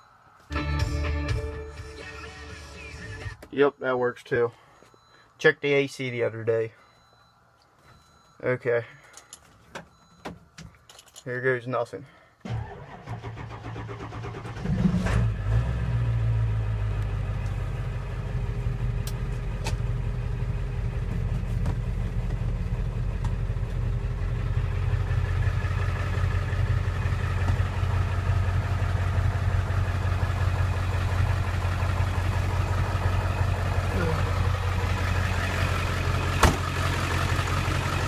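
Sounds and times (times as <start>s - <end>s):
diesel engine cranking and idling: 12.3s - 38.0s.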